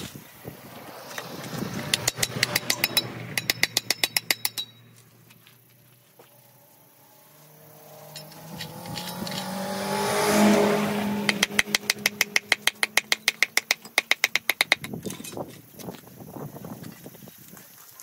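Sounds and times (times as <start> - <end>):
rapid even tapping: 1.8 - 4.8, 11.2 - 15.0.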